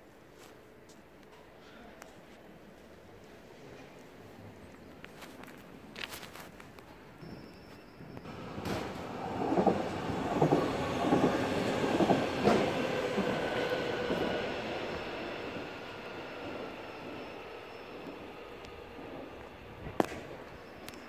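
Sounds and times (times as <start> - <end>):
train wheels clattering over rail joints: 8.3 - 14.3.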